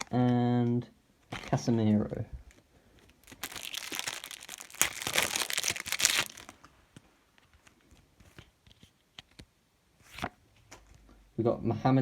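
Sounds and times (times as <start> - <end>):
foil pack tearing and crinkling: 3.2 - 6.6.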